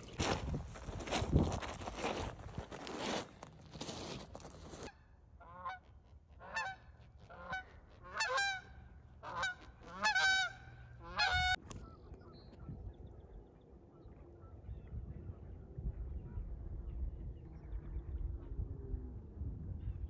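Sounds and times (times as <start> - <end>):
geese honking: 6.4 - 11.6.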